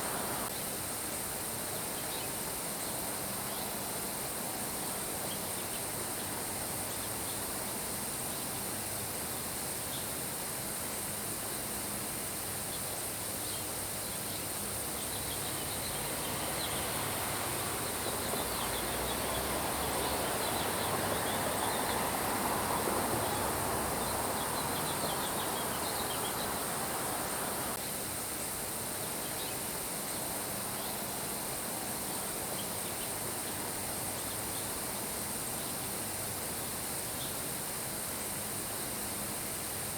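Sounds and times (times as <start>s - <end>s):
birds chirping faintly: 13.5s - 27.8s
steady rain falling: 16.0s - 27.8s.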